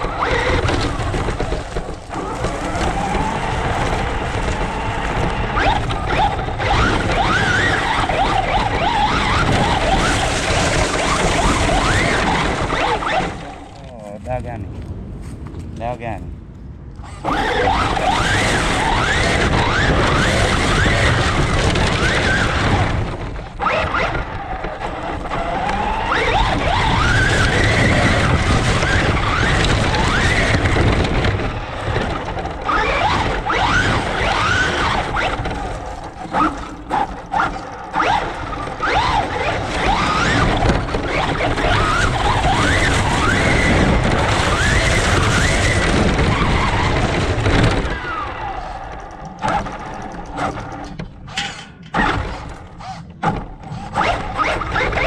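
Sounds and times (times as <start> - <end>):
rc truck motor whining: 0.0 - 13.9, 17.0 - 55.0
tyre and wind noise: 0.0 - 55.0.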